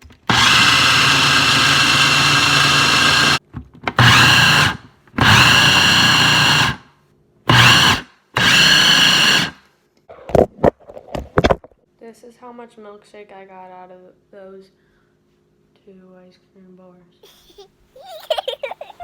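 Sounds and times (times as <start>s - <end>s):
blender motor whining: 0.0s - 6.8s, 7.5s - 9.6s.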